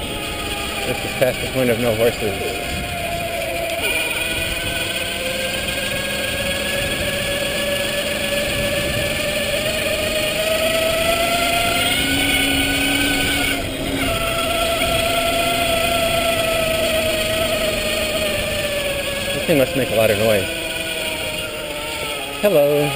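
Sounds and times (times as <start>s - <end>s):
electric motor whining: 0.0s - 22.9s
tyre and wind noise: 2.6s - 19.4s.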